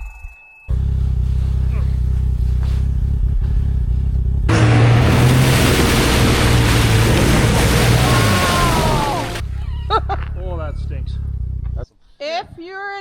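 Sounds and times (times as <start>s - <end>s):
track churning through snow: 0.8s - 9.4s
snowmobile engine revving: 4.5s - 11.8s.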